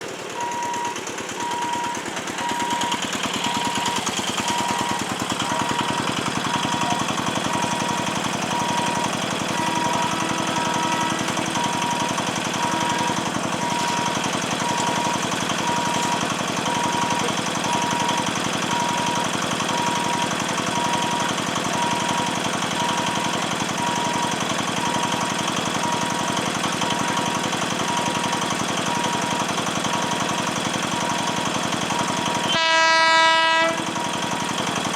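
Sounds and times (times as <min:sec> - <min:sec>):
level-crossing warning bell ringing: 0:00.3 - 0:34.9
steady repeating beep: 0:00.4 - 0:30.3.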